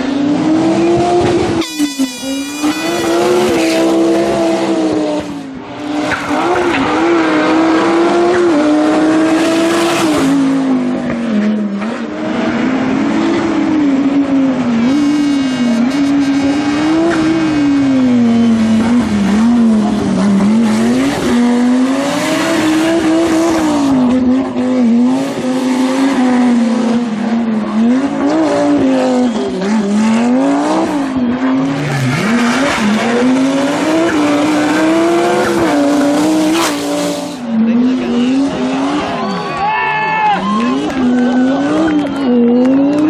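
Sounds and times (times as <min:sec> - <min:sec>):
rally car engine revving: 0:00.0 - 0:39.5, 0:40.4 - 0:43.0
tyres squealing and skidding: 0:01.5 - 0:04.0, 0:27.7 - 0:43.0.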